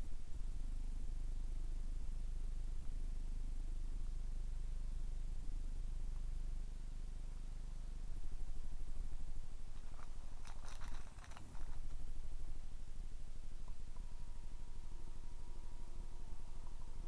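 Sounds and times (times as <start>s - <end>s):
thin steady whine: 0.0s - 17.0s
air cooler fan humming: 7.9s - 17.0s.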